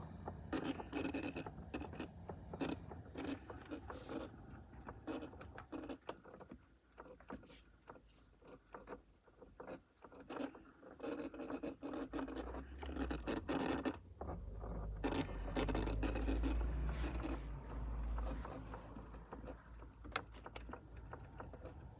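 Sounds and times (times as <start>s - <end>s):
motor clicking and scraping: 10.2s - 21.9s.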